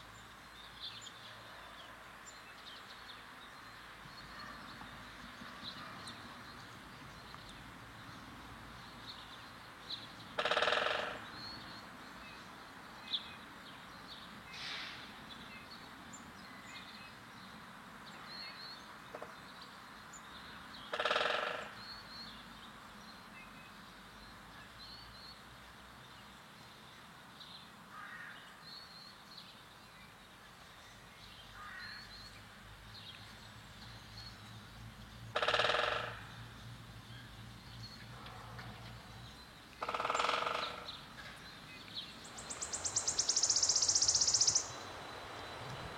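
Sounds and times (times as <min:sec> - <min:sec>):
loud bird call: 0:10.4 - 0:11.2, 0:20.9 - 0:21.9, 0:35.3 - 0:36.3, 0:42.3 - 0:45.6
faint high bird chirps: 0:41.8 - 0:44.9.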